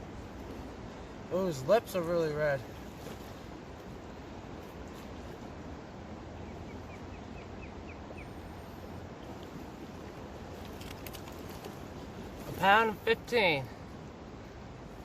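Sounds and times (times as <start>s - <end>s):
river water rushing: 0.0s - 15.0s
bird chirping: 6.4s - 8.4s.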